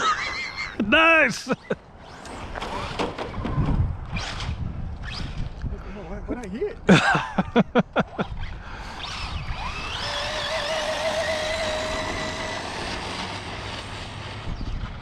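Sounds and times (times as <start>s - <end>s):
electric motor whining: 8.3s - 15.0s.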